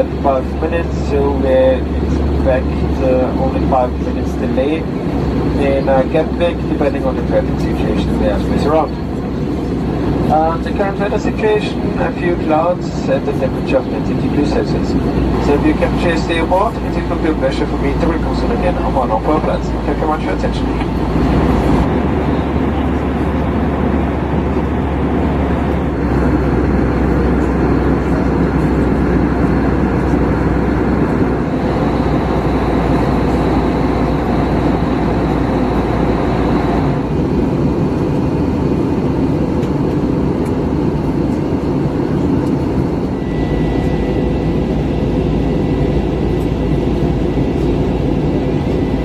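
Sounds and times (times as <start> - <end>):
airplane cabin engine drone: 0.0 - 49.0
faint high whine: 43.0 - 49.0.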